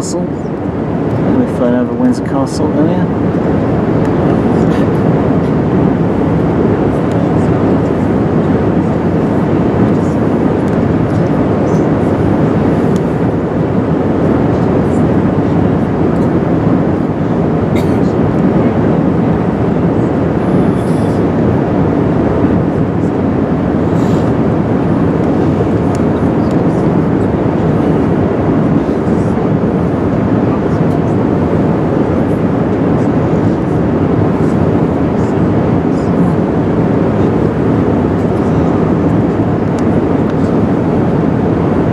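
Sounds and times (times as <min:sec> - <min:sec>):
jet engines at low power: 0:00.0 - 0:41.9
rushing airflow in aircraft cabin: 0:00.0 - 0:41.9.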